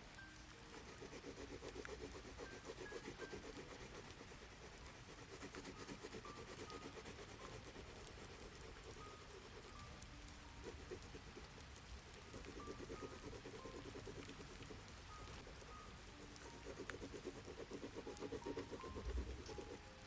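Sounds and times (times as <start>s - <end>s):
pen scratching on paper: 0.7s - 19.8s
rain hissing: 2.4s - 17.4s.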